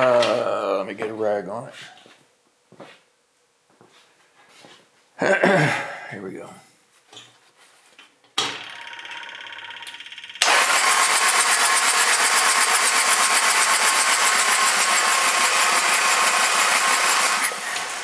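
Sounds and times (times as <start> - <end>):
diesel engine cranking: 8.6 - 18.0.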